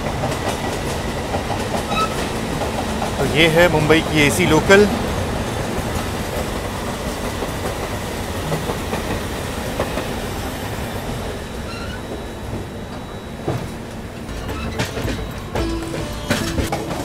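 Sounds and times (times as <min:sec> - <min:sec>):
train wheel and track noise: 0:00.0 - 0:17.0
wheels clacking over rail joints: 0:00.0 - 0:17.0.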